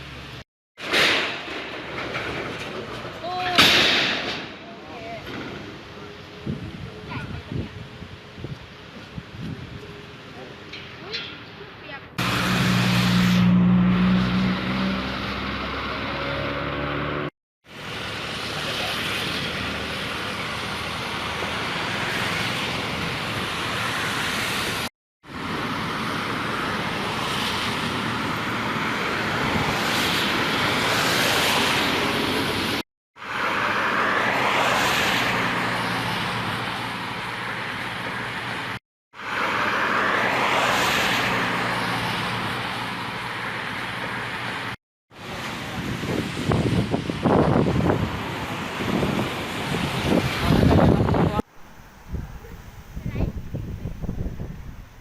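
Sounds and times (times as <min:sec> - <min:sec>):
rain: 0:17.7 - 0:50.7
storm wind gusting: 0:45.6 - 0:55.0.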